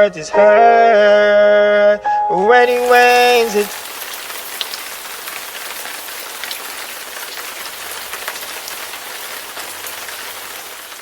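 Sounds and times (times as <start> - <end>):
steady rain falling: 2.5 - 11.0
rain drop taps: 2.6 - 11.0.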